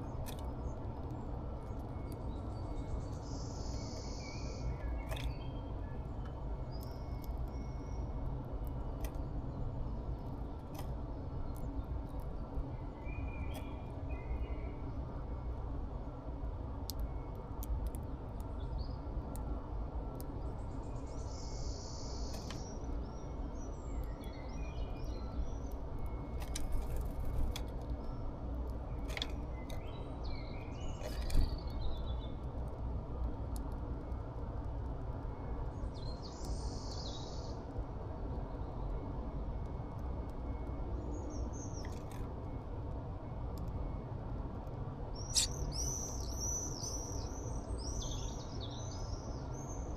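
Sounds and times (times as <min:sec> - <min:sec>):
small birds chirping: 0:00.0 - 0:15.0, 0:28.0 - 0:32.4, 0:45.2 - 0:49.9
low background rumble: 0:00.0 - 0:49.9.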